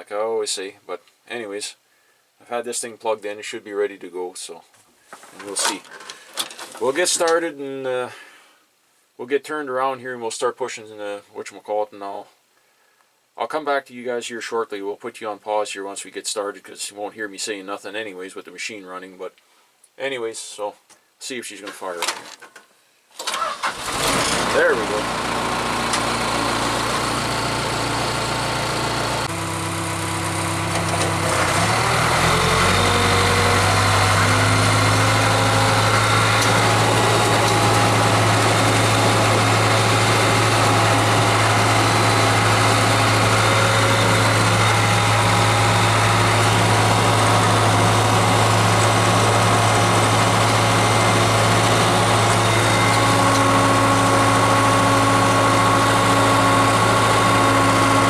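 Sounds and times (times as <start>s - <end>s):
diesel engine revving: 23.2s - 58.0s.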